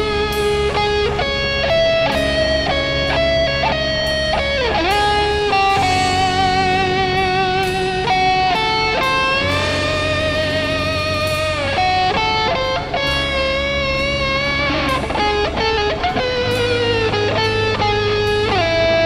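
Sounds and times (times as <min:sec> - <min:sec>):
electric guitar rock music: 0:00.0 - 0:19.0
steady bass: 0:00.0 - 0:19.0.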